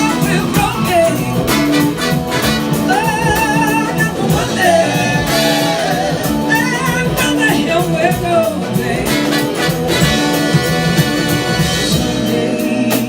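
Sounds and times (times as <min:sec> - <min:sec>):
person singing: 0:00.0 - 0:09.6
live band with brass: 0:00.0 - 0:13.0.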